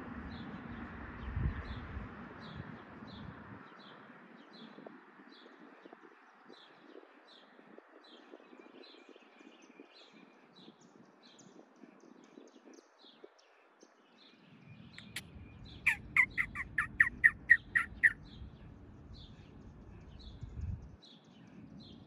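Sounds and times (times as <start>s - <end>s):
faint bird chirps: 5.6s - 22.0s
bird giving loud sharp calls: 15.0s - 18.2s.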